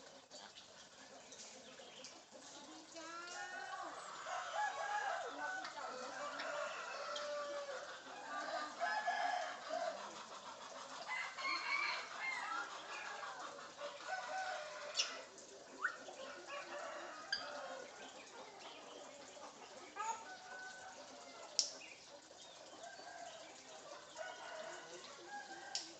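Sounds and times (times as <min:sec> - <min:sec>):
parrot clucking and crowing: 0:03.2 - 0:21.8.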